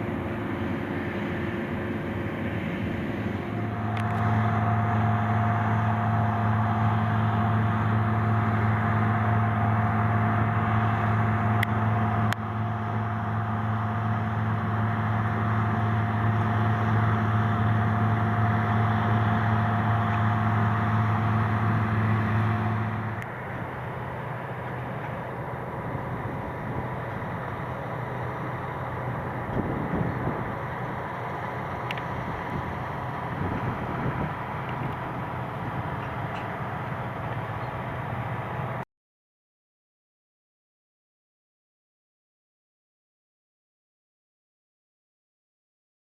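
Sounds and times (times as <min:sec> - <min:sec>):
diesel engine drone: 0:00.0 - 0:38.8.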